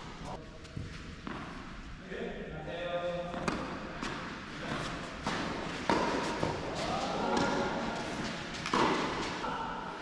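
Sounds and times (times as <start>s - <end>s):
tennis balls hit by rackets: 0.0s - 1.8s, 3.3s - 9.4s
tennis balls bouncing: 1.2s - 1.7s, 3.3s - 6.7s, 7.3s - 9.4s.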